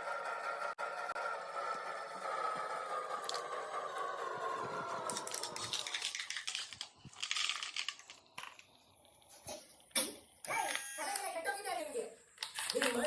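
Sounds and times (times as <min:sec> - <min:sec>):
clicks and rustling: 0:05.1 - 0:08.7.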